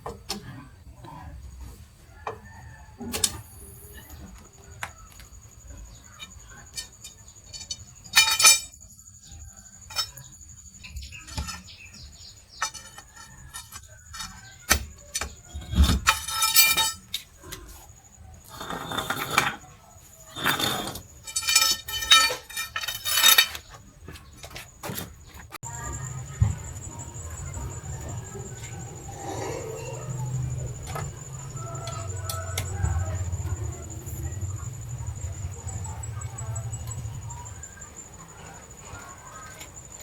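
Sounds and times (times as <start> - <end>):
metal tools clinking and clattering: 6.2 - 8.9, 9.8 - 17.4, 20.3 - 25.1
ringing metallic knocks: 6.3 - 8.8, 9.9 - 17.1, 21.2 - 23.6.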